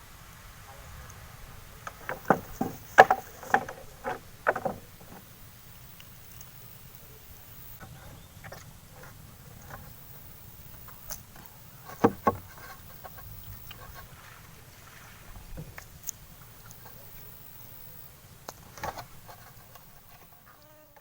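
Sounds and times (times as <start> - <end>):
sharp knocks: 2.0 - 5.2, 11.9 - 12.7.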